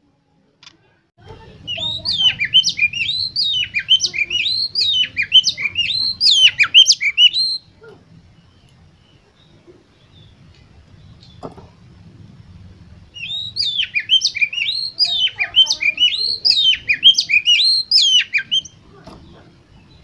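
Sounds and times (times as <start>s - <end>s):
magpie-robin singing swooping notes: 1.6s - 7.7s, 13.2s - 20.0s.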